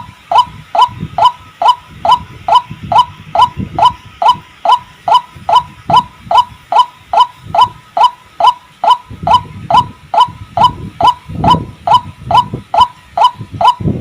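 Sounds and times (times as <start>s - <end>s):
waterhen repeated call: 0.0s - 14.0s.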